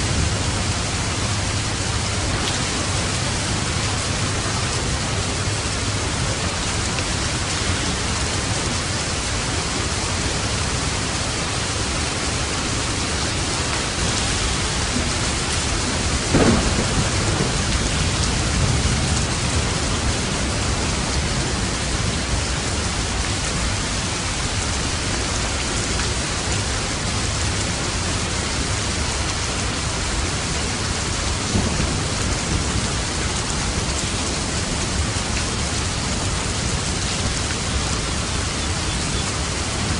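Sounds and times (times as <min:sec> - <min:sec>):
heavy rain: 0:00.0 - 0:39.9
thunder crack and rumble: 0:13.7 - 0:23.0, 0:31.0 - 0:37.6.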